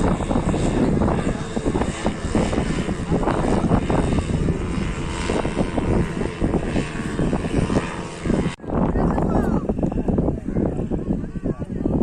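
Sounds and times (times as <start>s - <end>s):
paramotor engine and propeller: 0.0s - 12.0s
wind buffeting microphone: 0.0s - 12.0s.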